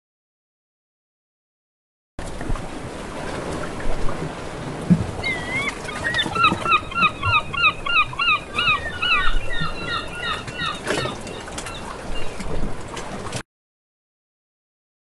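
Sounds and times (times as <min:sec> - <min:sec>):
sea or wind noise: 0:02.2 - 0:13.4.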